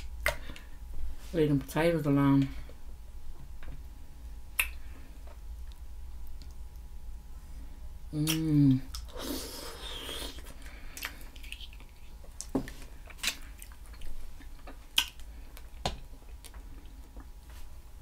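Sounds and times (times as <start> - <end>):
wet chewing and mouth smacking: 4.6 - 6.9, 8.2 - 17.3
sharp wet clicks: 14.6 - 15.7.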